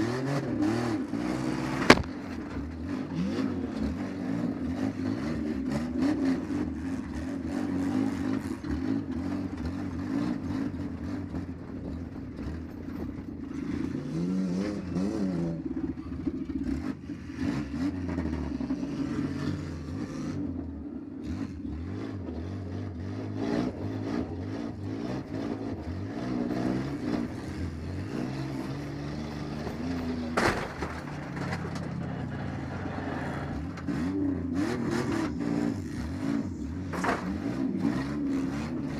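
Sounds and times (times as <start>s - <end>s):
car engine revving: 0.0s - 12.7s, 13.4s - 38.9s
clattering and knocks: 29.6s - 32.4s, 36.9s - 37.6s.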